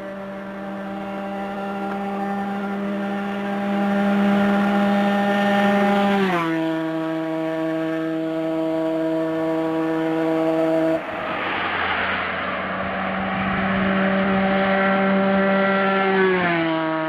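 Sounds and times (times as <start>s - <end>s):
motorcycle engine passing at speed: 0.0s - 17.0s.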